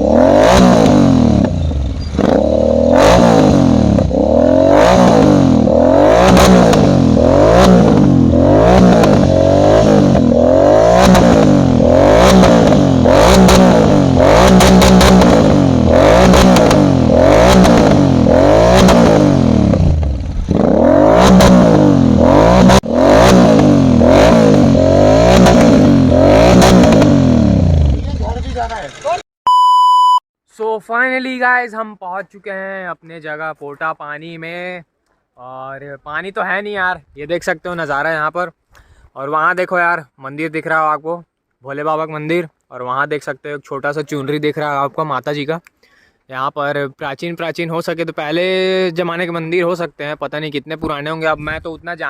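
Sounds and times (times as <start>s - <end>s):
motorcycle engine revving: 0.0s - 29.2s.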